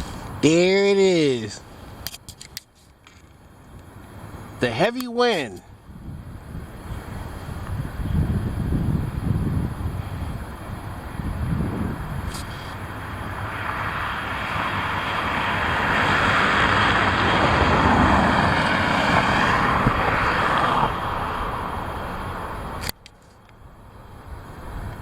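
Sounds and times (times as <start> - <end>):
wind buffeting microphone: 5.7 - 13.1, 14.8 - 22.8
vehicle passing by: 13.0 - 22.5.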